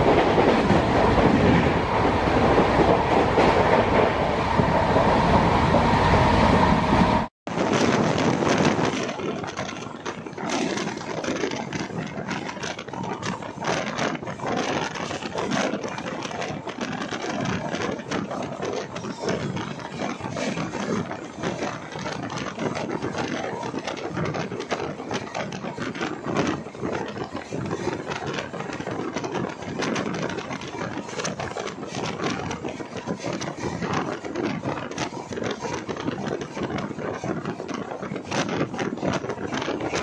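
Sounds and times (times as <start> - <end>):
wheels rumbling on track: 0.0 - 40.0
clicks and rattles: 7.6 - 40.0.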